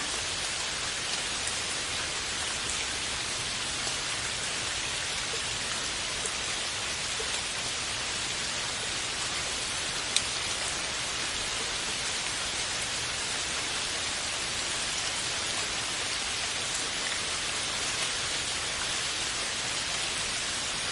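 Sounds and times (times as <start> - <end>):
steady rain: 0.0 - 20.9.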